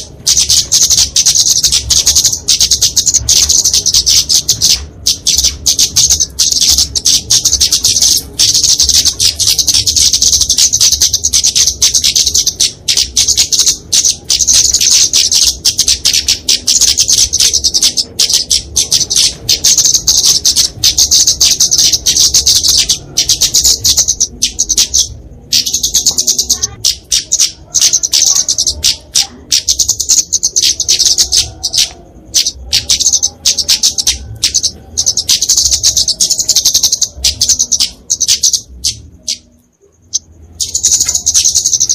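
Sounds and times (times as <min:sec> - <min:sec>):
bird giving rapid high chips: 0:00.0 - 0:41.9.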